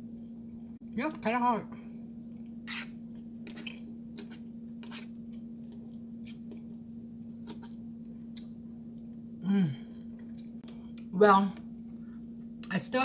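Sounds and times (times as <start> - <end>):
steady hum: 0.0 - 13.0
person chewing: 2.2 - 9.3, 10.0 - 11.1.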